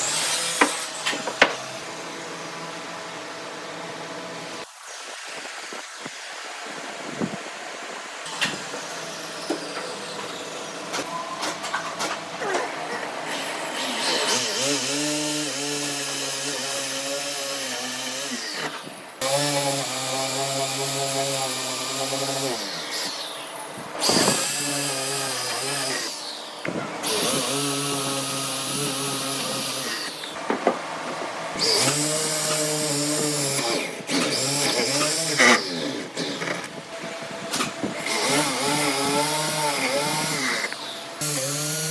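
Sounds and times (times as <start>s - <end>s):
power tool motor running: 13.2s - 30.4s, 31.6s - 36.8s, 37.5s - 41.9s.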